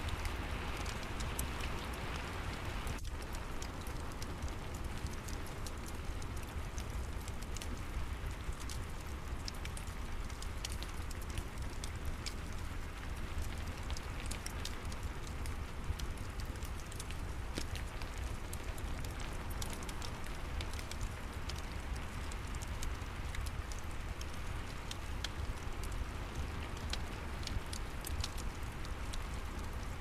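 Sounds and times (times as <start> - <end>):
steady rain: 0.0 - 30.0
wood fire crackling: 0.0 - 30.0.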